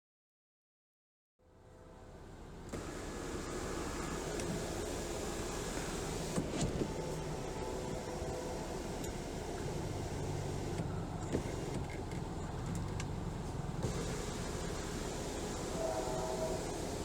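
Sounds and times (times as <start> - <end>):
car engine idling: 2.0 - 17.0.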